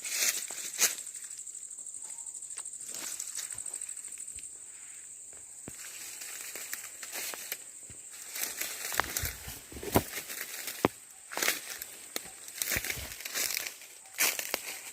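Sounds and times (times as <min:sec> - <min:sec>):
dry leaves and twigs crackling: 0:00.0 - 0:14.9
high insect drone: 0:00.0 - 0:14.9
twigs snapping: 0:08.2 - 0:14.9.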